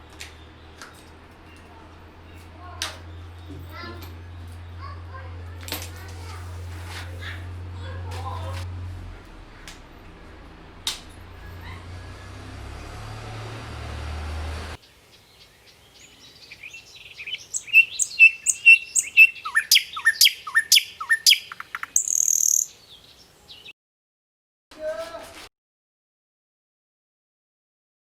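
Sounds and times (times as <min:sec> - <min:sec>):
bird chirping: 0:00.0 - 0:05.5, 0:14.8 - 0:23.7
steady low hum: 0:00.0 - 0:14.8.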